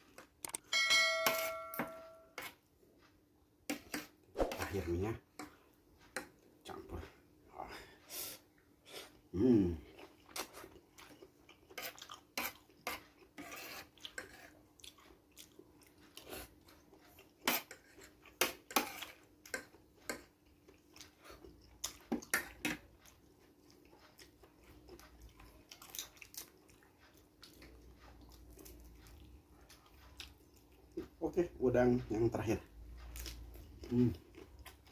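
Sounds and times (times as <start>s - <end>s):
chewing and mouth smacks: 14.0s - 18.4s, 19.0s - 31.0s.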